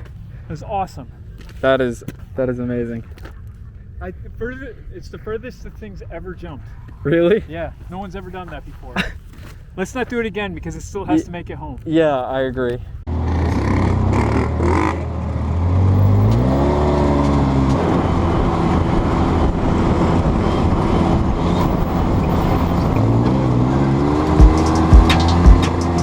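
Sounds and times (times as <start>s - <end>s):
vehicle engine accelerating: 13.1s - 26.0s
heavy low thumps: 24.4s - 25.7s.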